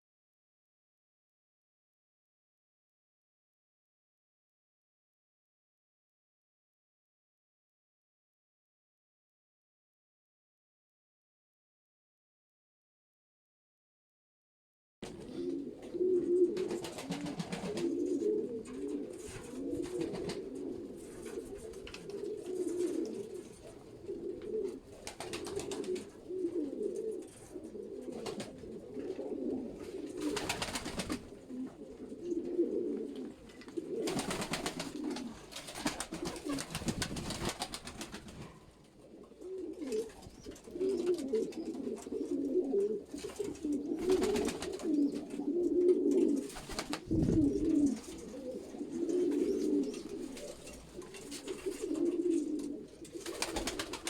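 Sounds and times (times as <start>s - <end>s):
pigeons cooing: 15.0s - 54.0s.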